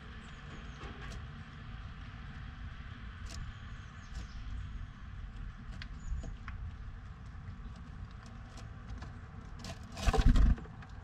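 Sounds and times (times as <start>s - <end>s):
bird claws scratching wood: 9.6s - 10.7s.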